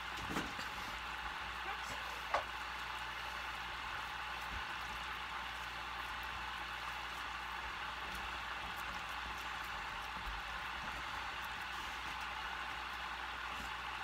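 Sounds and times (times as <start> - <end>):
faint crackles: 0.0 - 14.0.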